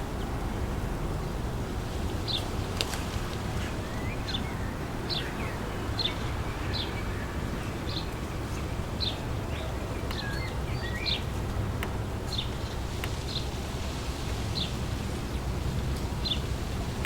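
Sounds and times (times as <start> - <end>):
wind blowing through trees: 0.0 - 17.0
bird chirping: 3.6 - 11.4.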